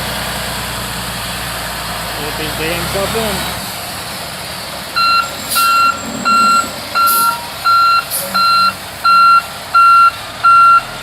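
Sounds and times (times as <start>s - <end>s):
low engine rumble: 0.0s - 11.0s
truck reversing alarm beeping: 4.9s - 11.0s.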